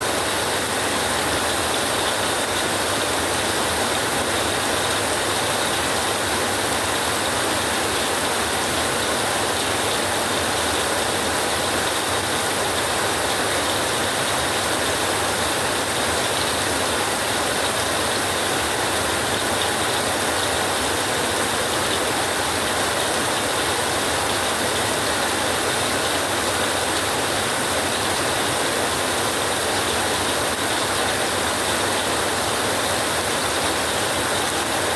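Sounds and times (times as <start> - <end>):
rain on a tin roof: 0.0 - 34.9.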